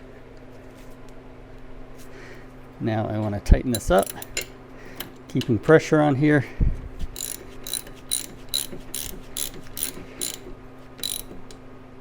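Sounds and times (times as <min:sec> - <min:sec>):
ratchet wrench clicking: 0:03.7 - 0:04.6, 0:07.2 - 0:11.6.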